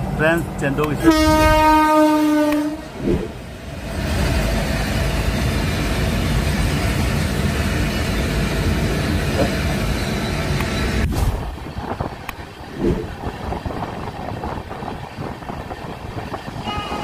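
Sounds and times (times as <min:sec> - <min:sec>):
low rumble of moving train: 0:00.0 - 0:17.0
diesel train horn: 0:00.9 - 0:03.0, 0:16.6 - 0:17.0.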